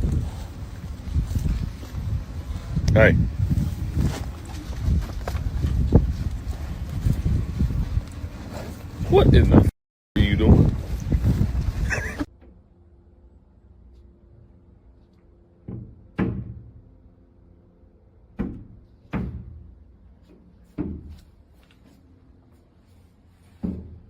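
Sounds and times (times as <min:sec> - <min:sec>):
heavy bangs on a panel: 0:15.6 - 0:16.8, 0:18.4 - 0:19.8.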